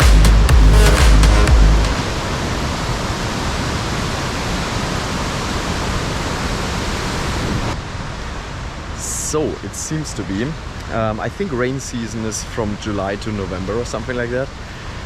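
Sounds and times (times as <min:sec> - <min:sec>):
music with heavy beat: 0:00.0 - 0:02.0
waterfall roaring: 0:01.9 - 0:12.3.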